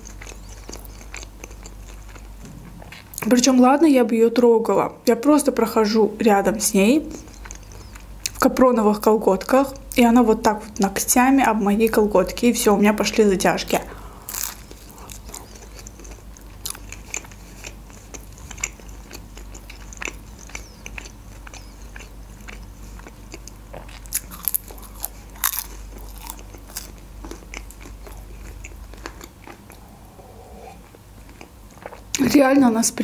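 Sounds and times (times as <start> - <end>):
close chewing with mouth smacks: 0.0 - 2.4, 7.1 - 8.4, 14.3 - 29.9, 30.8 - 32.2.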